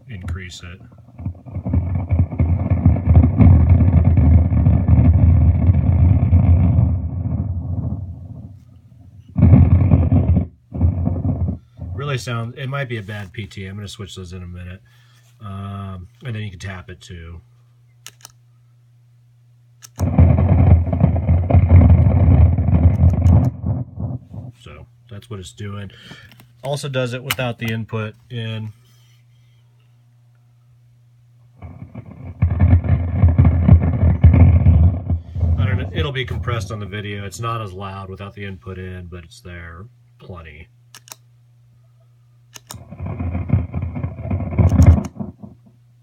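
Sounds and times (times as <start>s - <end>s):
guitar amp rumbling noise: 0.0s - 13.4s, 20.0s - 24.9s, 31.5s - 40.6s, 42.6s - 45.9s
pedal clicks: 19.8s - 23.8s, 42.6s - 45.7s.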